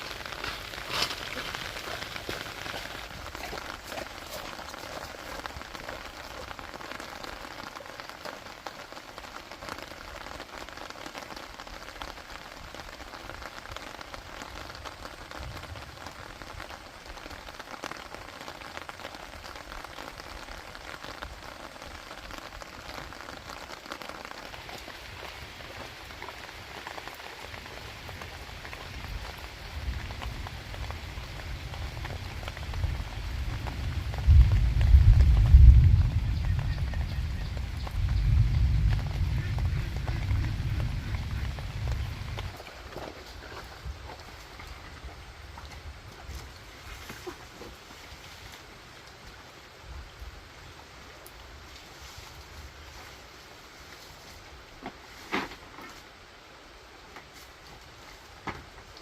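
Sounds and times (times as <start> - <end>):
rain falling: 0.0 - 59.0
low rumble: 33.6 - 42.5.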